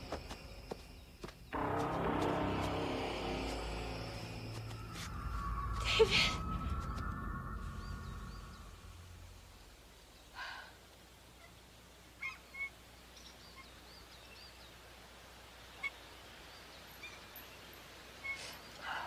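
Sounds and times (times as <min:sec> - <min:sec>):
small birds chirping: 0:03.0 - 0:19.0.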